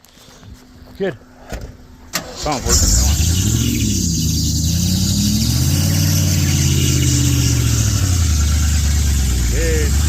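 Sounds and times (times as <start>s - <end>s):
engine revving and idling: 2.4s - 10.0s.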